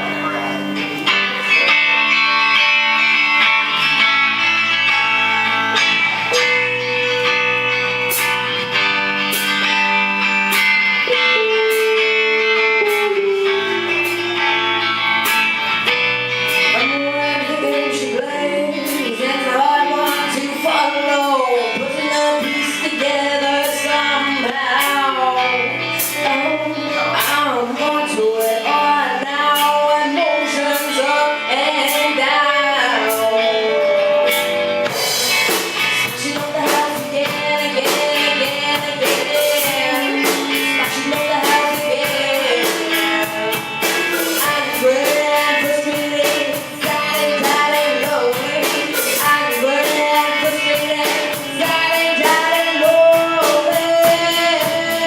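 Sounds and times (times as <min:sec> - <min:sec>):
live band playing a song: 0:00.0 - 0:55.0
person singing: 0:15.8 - 0:55.0.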